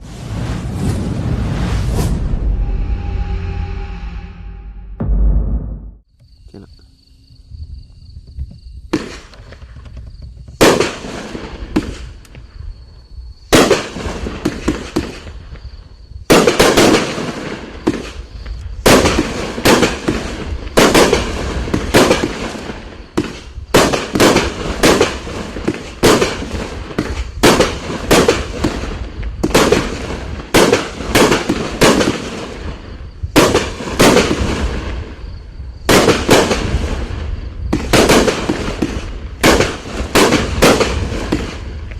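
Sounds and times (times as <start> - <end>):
fireworks bangs: 10.5 - 12.2, 13.5 - 15.4, 16.3 - 41.9.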